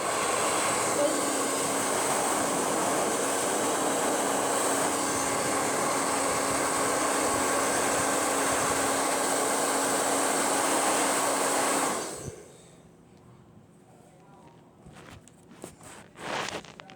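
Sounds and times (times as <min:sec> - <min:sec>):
hair dryer running: 0:00.0 - 0:12.8.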